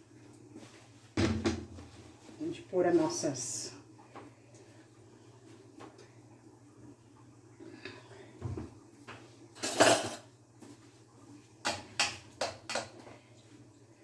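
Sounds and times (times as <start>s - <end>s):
kitchen utensils and pan clattering: 9.6s - 10.3s.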